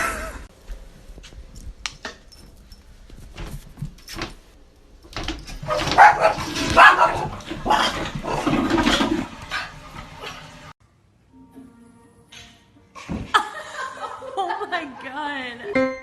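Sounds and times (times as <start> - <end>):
dog barking: 5.6 - 8.0.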